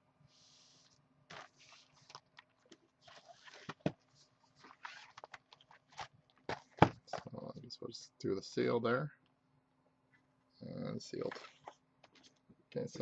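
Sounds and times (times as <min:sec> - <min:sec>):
boxes rustling: 0:01.3 - 0:07.4.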